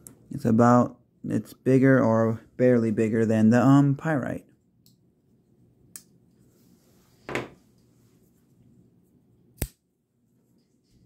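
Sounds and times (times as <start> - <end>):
knife knocking when set down: 7.3 - 7.6.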